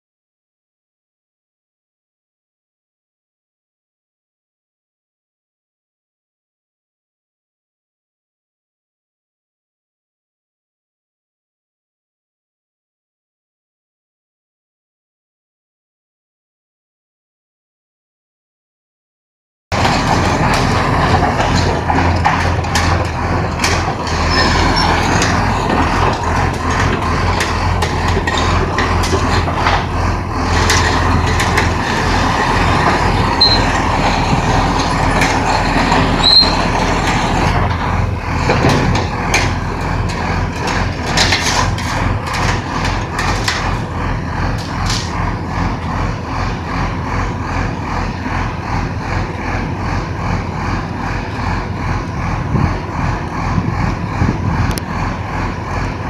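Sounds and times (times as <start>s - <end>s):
drilling rig engine drone: 19.7s - 56.0s
sharp mechanical knocks: 34.8s - 45.3s.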